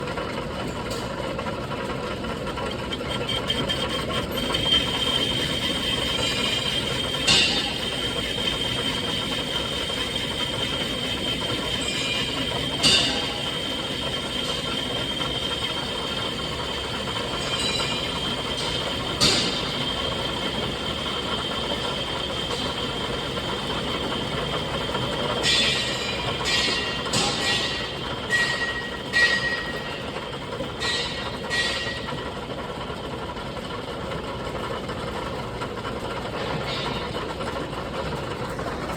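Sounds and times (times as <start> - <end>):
industrial machine whining: 0.1 - 38.9
sharp metallic clank: 6.1 - 23.0, 23.8 - 32.3
machine knocks: 25.4 - 30.0.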